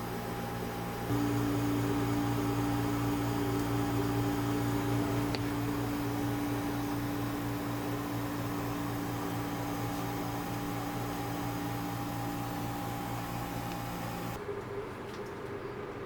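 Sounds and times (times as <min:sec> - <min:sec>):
small motor humming: 0:00.0 - 0:14.4.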